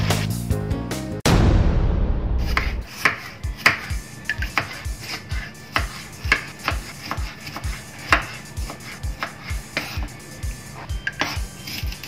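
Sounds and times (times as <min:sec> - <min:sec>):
music with kick drum beat: 0:05.8 - 0:12.0.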